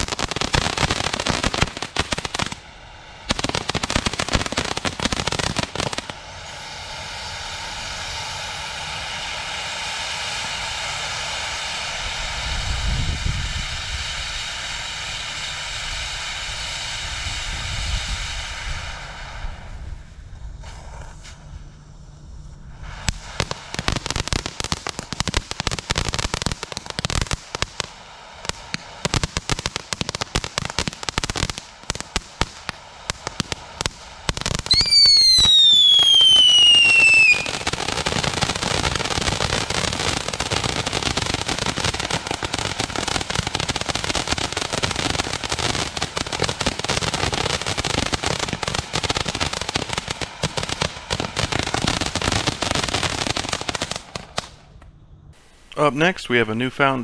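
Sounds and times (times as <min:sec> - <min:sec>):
firework crackle and hiss: 0:00.0 - 0:57.0
firework crackling pops: 0:00.0 - 0:57.0
firework whistle falling in pitch: 0:34.7 - 0:38.2.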